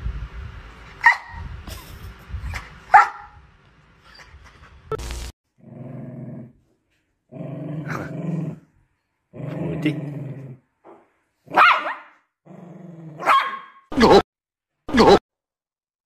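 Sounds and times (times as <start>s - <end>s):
dog barking: 1.0s - 1.4s, 2.9s - 3.4s, 11.5s - 12.2s, 13.2s - 13.8s
dog growling: 5.6s - 6.6s, 7.3s - 8.7s, 9.3s - 10.6s, 12.5s - 13.3s.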